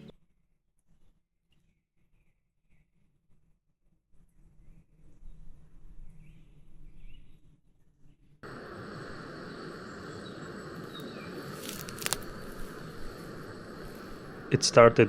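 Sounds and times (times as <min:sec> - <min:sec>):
insects chirring: 0:08.4 - 0:15.0.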